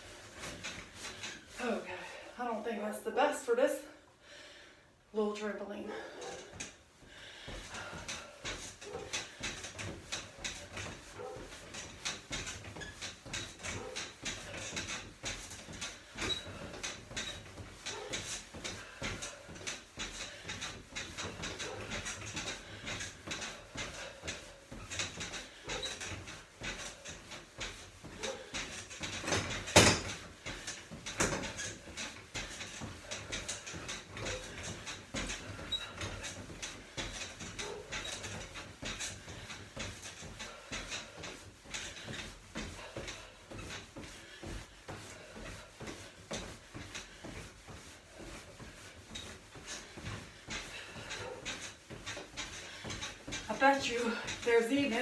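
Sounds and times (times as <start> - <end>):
trampoline springs creaking: 0.0 - 3.8, 5.2 - 55.0.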